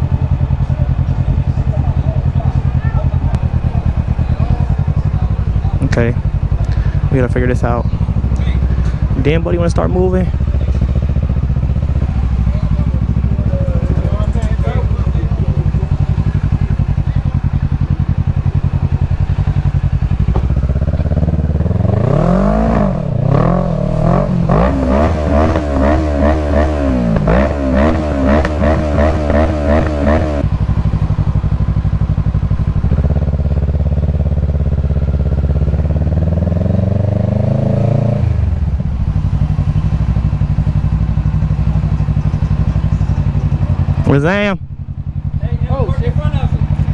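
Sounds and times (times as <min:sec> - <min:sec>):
motorcycle engine idling and revving: 0:00.0 - 0:46.9.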